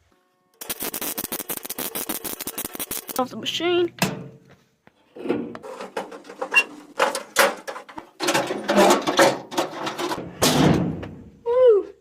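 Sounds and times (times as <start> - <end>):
metal tailgate clanks and rattles: 5.3 - 11.1.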